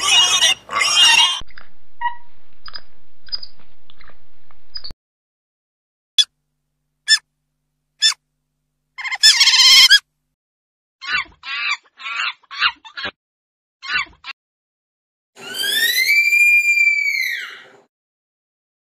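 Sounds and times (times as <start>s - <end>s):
chicken harsh call: 15.4s - 17.7s.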